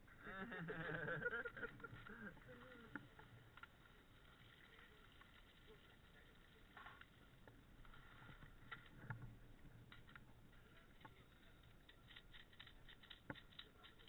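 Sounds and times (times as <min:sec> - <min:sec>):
small clicks and taps: 0:06.7 - 0:14.0.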